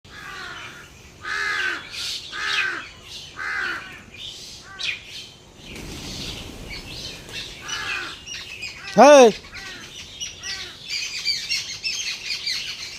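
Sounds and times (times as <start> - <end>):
bird calling: 5.7 - 12.9.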